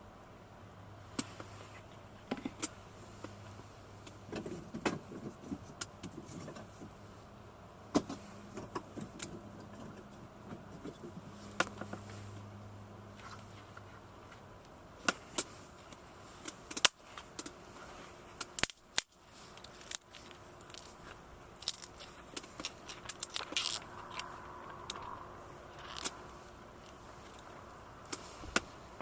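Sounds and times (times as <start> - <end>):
small gear being handled: 16.4 - 28.7.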